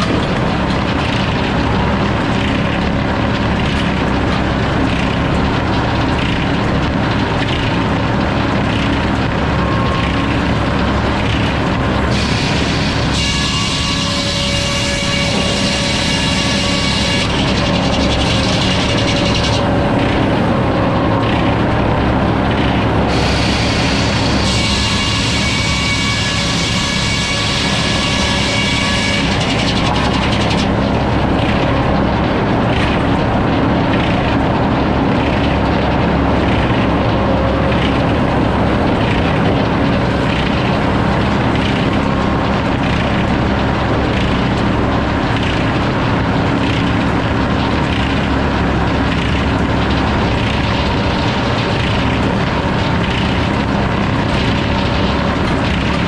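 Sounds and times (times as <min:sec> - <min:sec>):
sawmill engine hum: 0:00.0 - 0:56.0
saw blade cutting wood: 0:11.3 - 0:20.7, 0:22.7 - 0:31.7.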